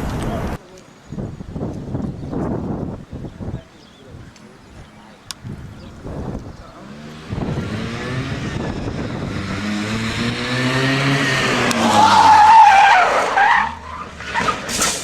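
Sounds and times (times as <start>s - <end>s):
car engine revving: 6.2s - 15.0s
tires squealing: 6.7s - 15.0s.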